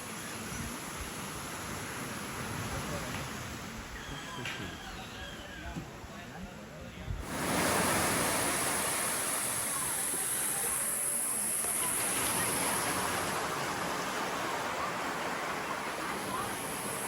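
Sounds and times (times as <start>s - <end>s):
ocean surf washing on shore: 7.2s - 17.0s.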